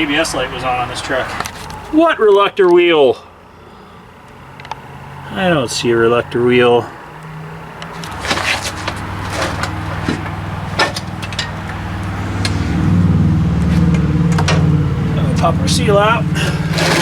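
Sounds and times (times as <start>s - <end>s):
motor humming: 16.2s - 17.0s.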